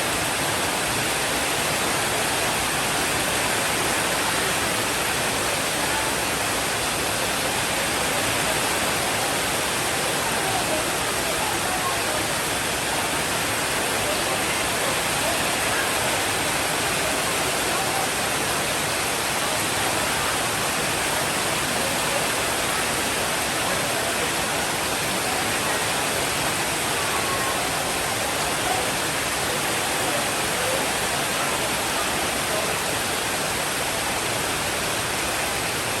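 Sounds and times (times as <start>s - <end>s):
heavy rain downpour: 0.0s - 36.0s.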